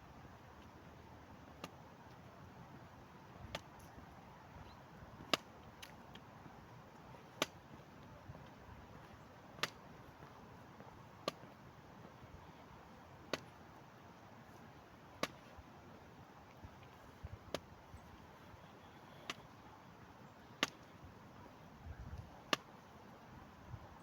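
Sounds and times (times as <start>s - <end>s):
faint steady hiss: 0.0s - 24.0s
sharp single clicks: 3.5s - 6.3s, 7.3s - 7.8s, 8.9s - 9.9s, 11.2s - 11.6s, 13.3s - 13.6s, 15.2s - 15.5s, 19.1s - 19.6s, 20.5s - 21.0s, 22.2s - 22.8s.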